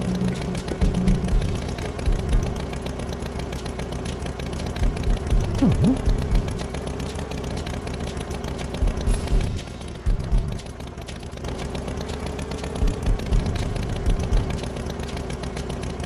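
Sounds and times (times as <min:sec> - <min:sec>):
vehicle engine rattling: 0:00.0 - 0:16.0
low thumps: 0:04.8 - 0:06.5.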